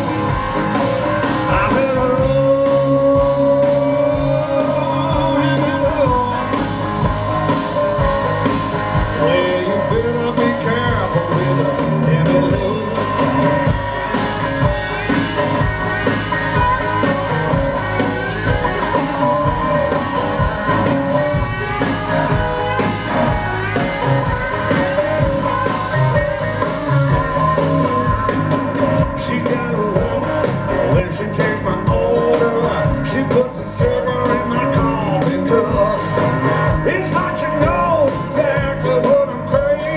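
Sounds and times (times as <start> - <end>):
electric guitar: 0.0 - 39.9
steady drum beat: 0.0 - 39.9.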